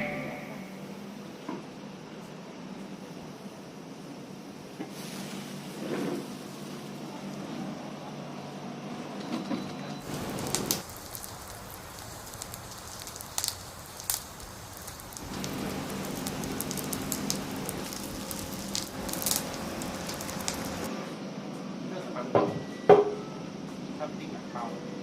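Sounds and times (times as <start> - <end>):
skewers sizzling on a grill: 4.9 - 7.9, 10.0 - 21.0.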